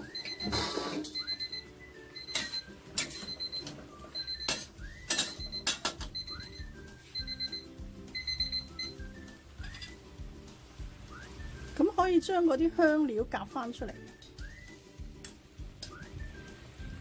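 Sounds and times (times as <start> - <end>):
light bell-like background music: 0.0 - 10.0.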